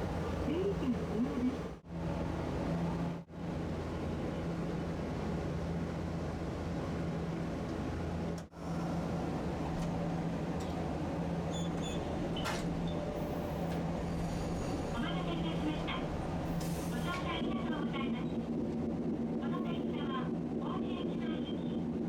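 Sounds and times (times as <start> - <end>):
streetcar rolling on tracks: 0.0 - 22.0.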